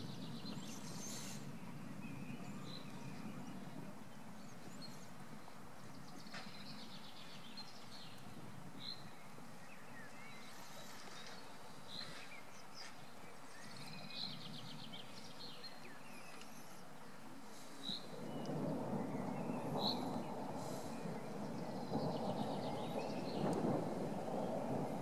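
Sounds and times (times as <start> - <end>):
outdoor hiss: 0.0 - 1.7, 19.9 - 21.5
songbirds chirping: 0.0 - 25.0.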